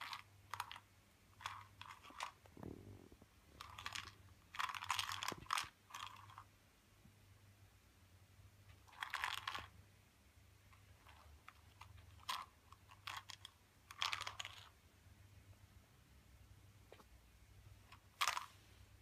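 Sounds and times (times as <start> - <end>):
cat crunching dry treats: 0.0 - 6.5, 8.9 - 9.7, 11.0 - 14.7.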